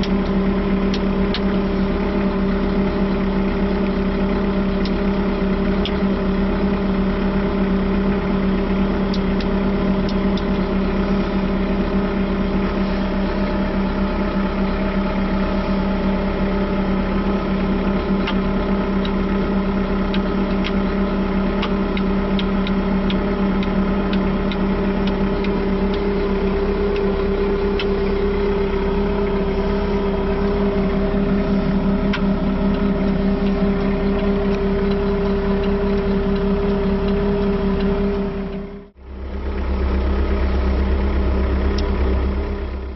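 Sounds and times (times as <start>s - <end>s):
faint ticks: 0.0s - 1.6s, 4.7s - 5.1s, 20.0s - 29.4s, 30.0s - 38.6s
diesel engine idling: 0.0s - 42.9s.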